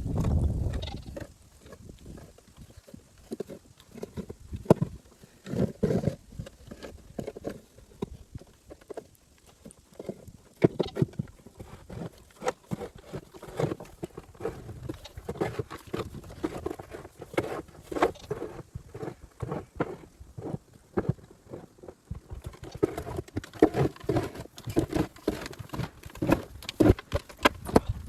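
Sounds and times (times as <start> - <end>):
snow shovel scraping snow: 11.5 - 21.7, 22.7 - 27.8.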